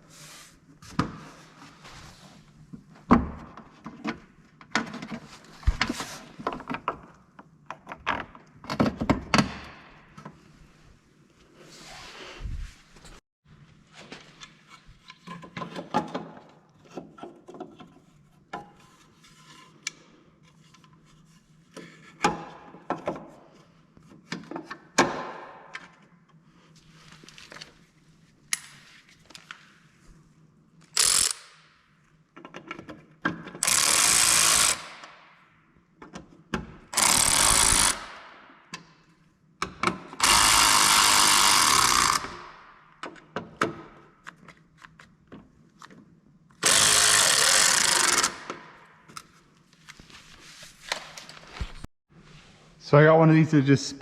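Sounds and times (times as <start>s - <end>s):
power tool running: 37.0s - 38.1s, 40.2s - 42.4s, 46.6s - 48.4s.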